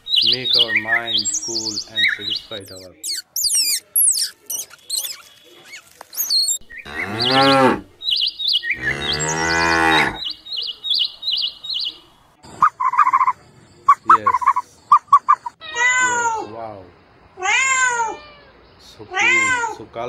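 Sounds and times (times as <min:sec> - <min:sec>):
small birds chirping: 0:00.0 - 0:20.0
cow mooing: 0:06.8 - 0:07.9, 0:08.8 - 0:10.2.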